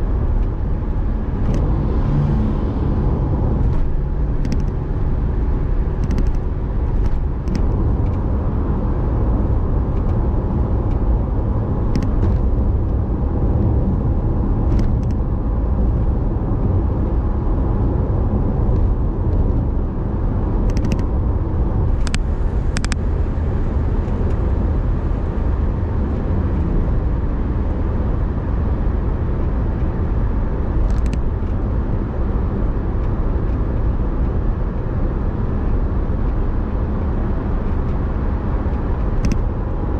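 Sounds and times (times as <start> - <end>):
car engine and road noise: 0.0 - 39.9
brief sharp clicks: 4.4 - 4.8.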